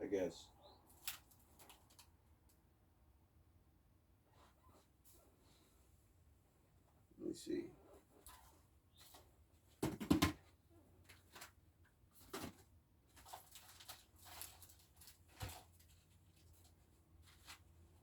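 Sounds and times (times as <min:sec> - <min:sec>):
knocks and rustles of searching: 0:08.1 - 0:17.7.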